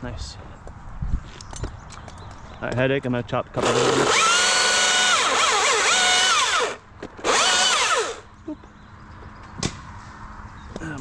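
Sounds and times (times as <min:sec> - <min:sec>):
chainsaw cutting at full throttle: 0:03.6 - 0:08.2.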